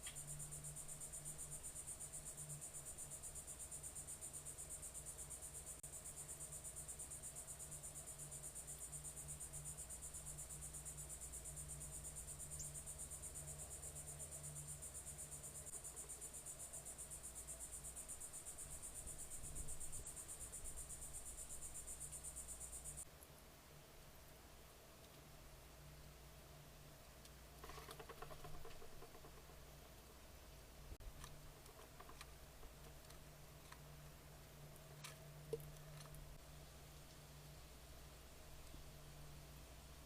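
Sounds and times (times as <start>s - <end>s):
insects trilling: 0.0s - 23.1s, 27.6s - 29.8s.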